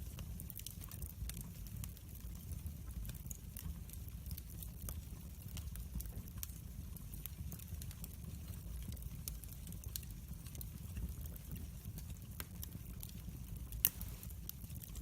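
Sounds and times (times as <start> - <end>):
fire crackling and popping: 0.0 - 15.0
wood fire rumbling: 0.0 - 15.0.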